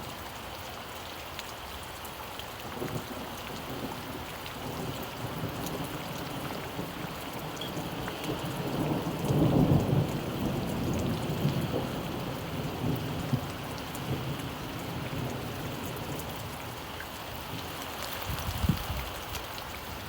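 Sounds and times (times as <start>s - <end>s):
steady rain: 0.0s - 20.0s
low thunder rumble: 2.8s - 16.7s.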